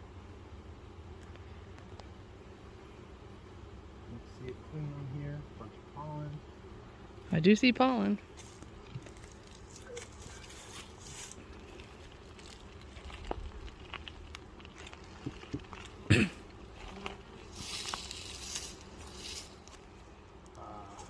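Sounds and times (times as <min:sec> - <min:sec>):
rustling hiss: 0:04.1 - 0:21.0
beehive frames knocking and scraping: 0:08.2 - 0:20.5.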